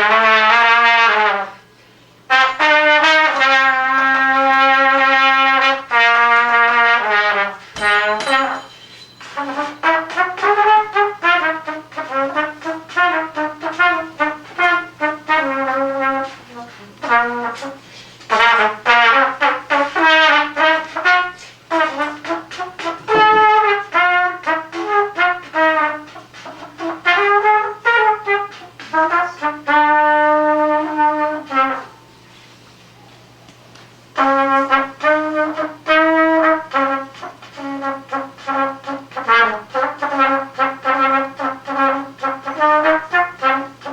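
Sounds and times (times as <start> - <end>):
trumpet melody: 0.0 - 32.4, 34.0 - 43.9
player breathing: 17.8 - 18.3.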